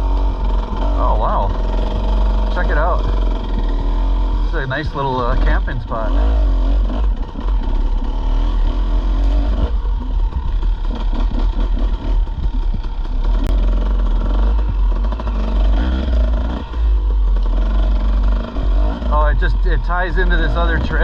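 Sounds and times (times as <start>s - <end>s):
dirt bike engine running: 0.0s - 21.0s
knocks and rattles: 6.8s - 20.1s.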